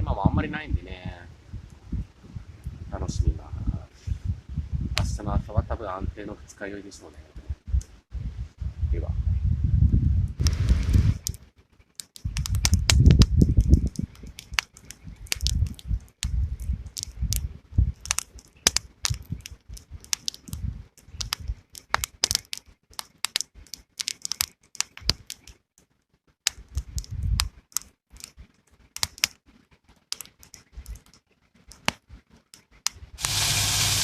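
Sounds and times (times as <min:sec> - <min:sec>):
wood fire crackling and popping: 0:07.1 - 0:08.0, 0:09.9 - 0:34.0
loud steady hiss: 0:33.1 - 0:34.0.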